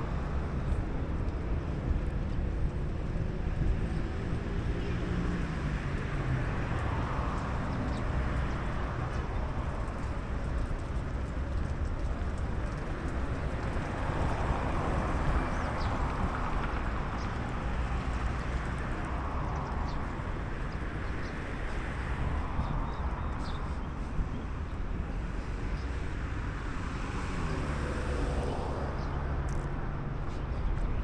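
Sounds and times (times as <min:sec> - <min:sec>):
traffic engines: 0:00.0 - 0:31.0.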